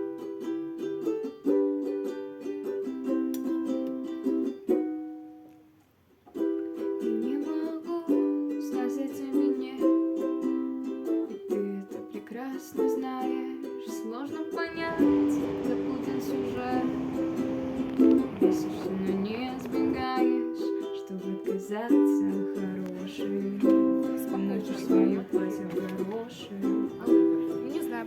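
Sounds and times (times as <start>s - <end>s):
ukulele plucking melody: 0.0s - 28.0s
steady hiss: 14.6s - 20.2s.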